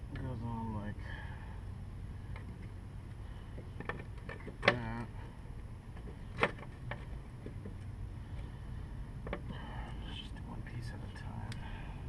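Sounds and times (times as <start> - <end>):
lawn mower parts clicking: 3.6 - 5.1.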